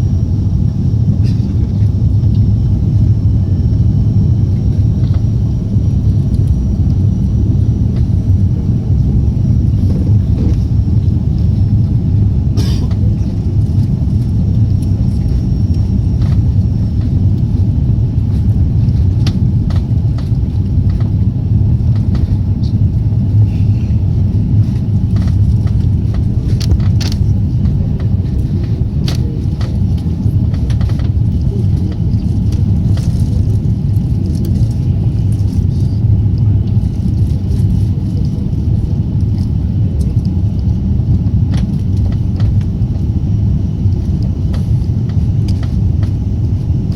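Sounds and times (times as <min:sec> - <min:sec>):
jet engine rumble: 0:00.0 - 0:46.9.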